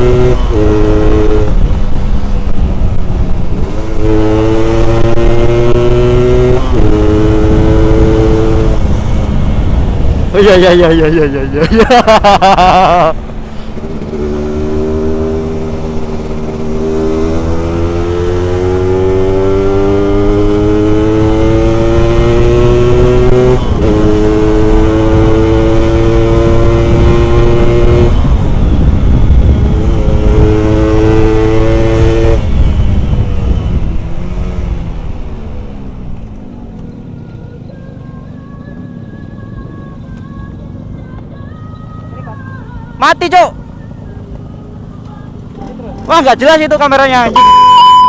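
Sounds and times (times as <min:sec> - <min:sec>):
motorcycle engine revving: 0:00.0 - 0:36.9.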